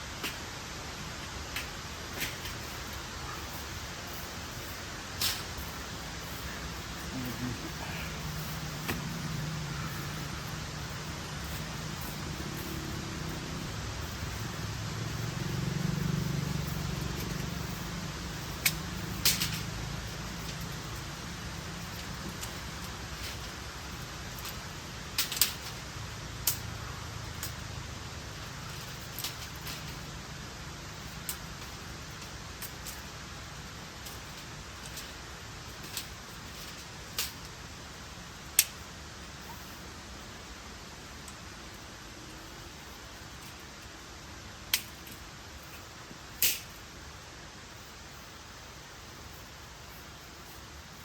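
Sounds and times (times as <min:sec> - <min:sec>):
low vehicle engine hum: 0:00.0 - 0:34.7
background hiss: 0:00.0 - 0:51.0
steady rushing noise: 0:00.0 - 0:51.0.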